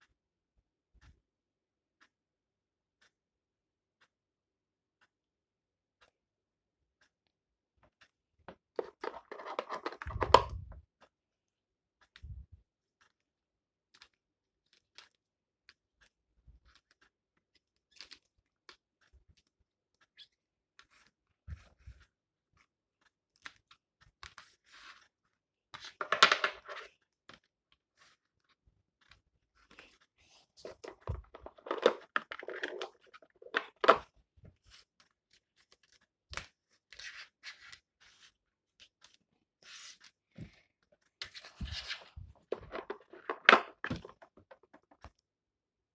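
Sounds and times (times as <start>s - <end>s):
cards clicking and tapping: 8.5s - 10.6s, 25.7s - 28.2s, 30.6s - 34.1s, 41.2s - 45.2s.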